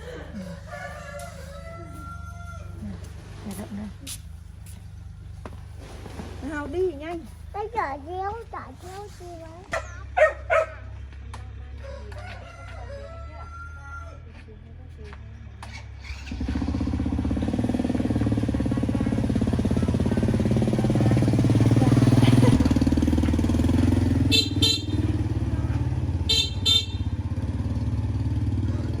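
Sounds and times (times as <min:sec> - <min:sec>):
motorbike engine running: 0:14.7 - 0:29.0
motorbike horn beeps: 0:24.1 - 0:27.5.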